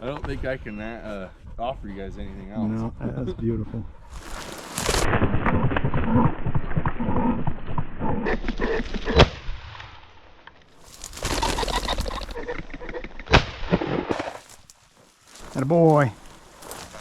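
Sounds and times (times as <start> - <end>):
rapid crackling rustle: 4.0 - 5.2, 10.7 - 12.4, 13.8 - 17.0
rustling hiss: 10.8 - 12.4, 14.1 - 17.0.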